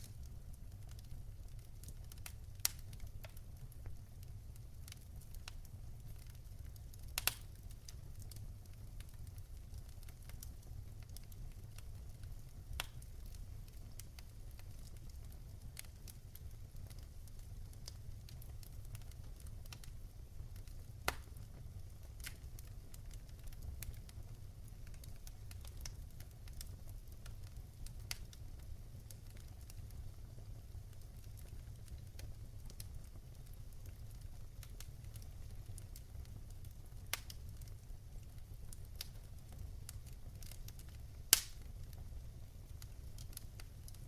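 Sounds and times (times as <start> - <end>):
fire crackling and popping: 0.0 - 44.0.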